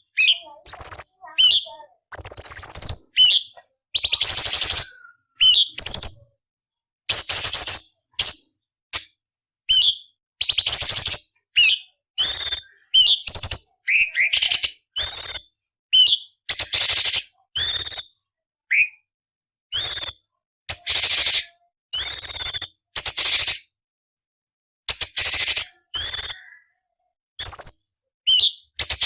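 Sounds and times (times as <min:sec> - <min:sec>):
bird singing raspy phrases: 0:00.0 - 0:06.4, 0:09.7 - 0:18.1, 0:25.1 - 0:29.0.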